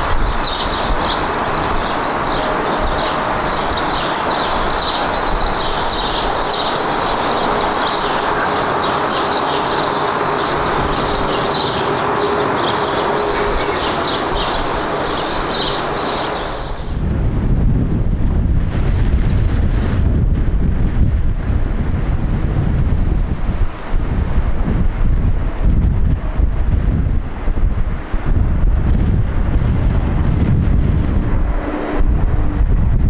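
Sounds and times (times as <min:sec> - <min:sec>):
small birds chirping: 0:00.0 - 0:17.1, 0:18.8 - 0:20.0
airliner jet engine rushing: 0:00.0 - 0:33.0.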